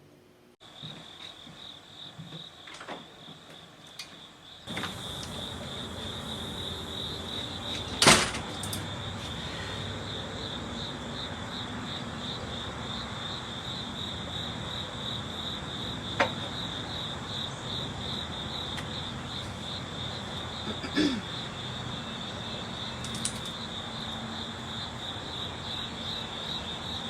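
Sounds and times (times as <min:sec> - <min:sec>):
crickets chirping: 0:00.6 - 0:27.0.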